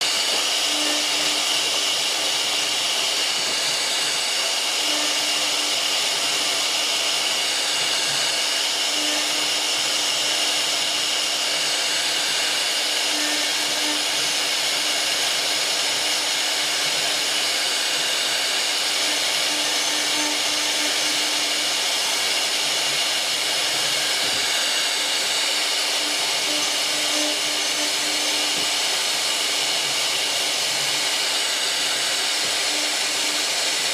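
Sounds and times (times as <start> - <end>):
router spindle whine: 0.0 - 33.9.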